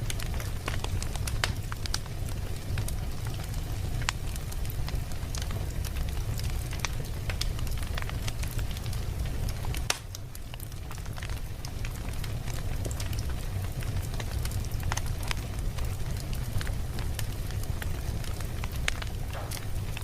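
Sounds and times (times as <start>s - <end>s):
low fire rumble: 0.0s - 20.0s
wood fire crackling and popping: 0.0s - 20.0s.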